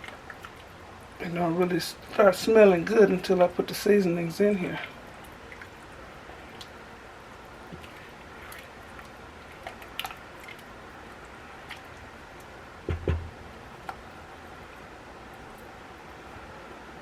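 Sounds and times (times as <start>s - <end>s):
steady low hiss: 0.0s - 17.0s
dull thumps: 12.8s - 13.4s.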